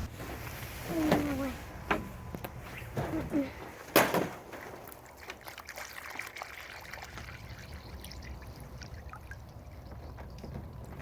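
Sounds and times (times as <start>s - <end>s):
water trickling from jug: 4.8s - 11.0s.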